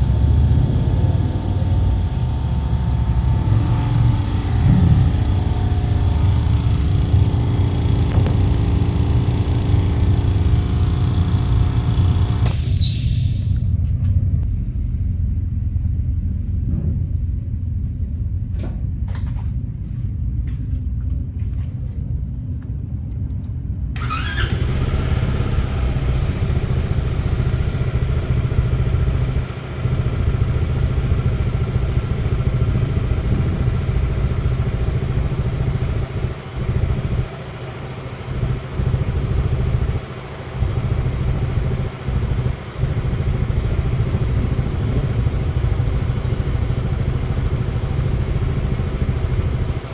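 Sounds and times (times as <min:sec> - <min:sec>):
scooter engine rumbling: 0:00.0 - 0:13.9, 0:24.0 - 0:49.9.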